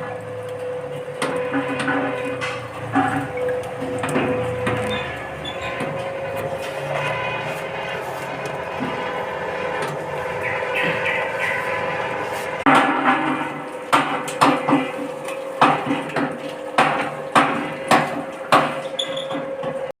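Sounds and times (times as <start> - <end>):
machine humming: 0.0 - 19.0
sharp knocks: 12.7 - 15.0, 15.6 - 18.8.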